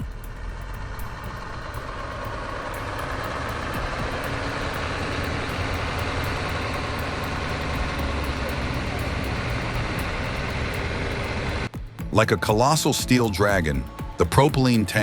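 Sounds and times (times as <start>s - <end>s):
heavy truck rumbling: 0.0s - 11.7s.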